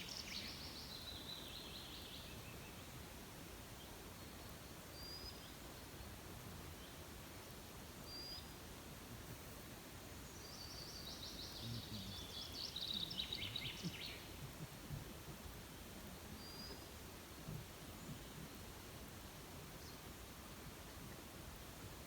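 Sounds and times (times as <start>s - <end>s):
songbird singing: 0.0s - 3.0s, 8.0s - 8.6s, 10.0s - 18.8s
faint background hiss: 0.0s - 22.0s.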